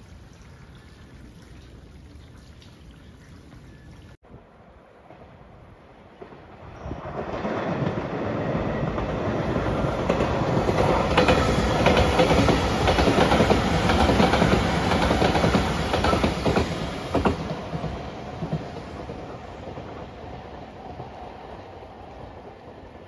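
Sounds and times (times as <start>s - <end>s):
electric train passing at speed: 3.7s - 23.0s
wheels clacking over rail joints: 7.1s - 21.9s.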